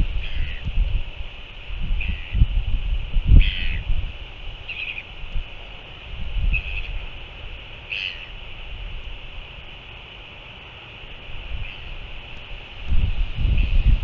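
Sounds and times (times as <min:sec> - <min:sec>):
wind gusts on microphone: 0:00.0 - 0:14.0
short bird calls: 0:00.2 - 0:00.6, 0:02.0 - 0:02.4, 0:03.4 - 0:03.8, 0:04.6 - 0:05.1, 0:06.5 - 0:07.0, 0:07.9 - 0:08.4.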